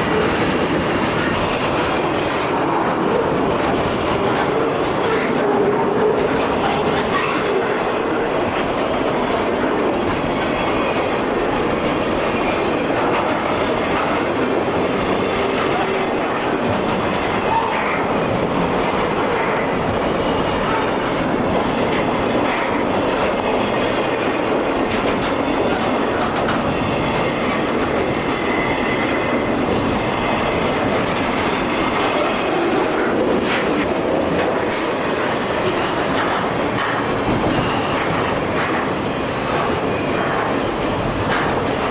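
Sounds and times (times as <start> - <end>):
train wheels clattering on rails: 0.0 - 41.9.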